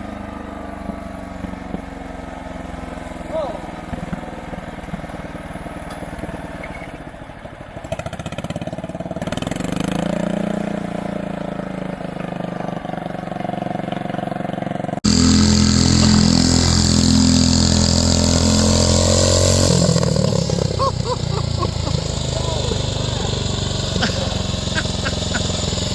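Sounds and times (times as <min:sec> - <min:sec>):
lawn tractor engine running: 0:12.0 - 0:25.9.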